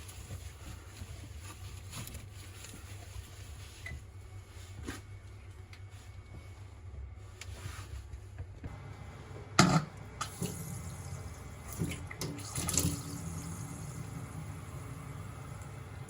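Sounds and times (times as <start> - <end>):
water running from faucet: 10.0 - 16.0.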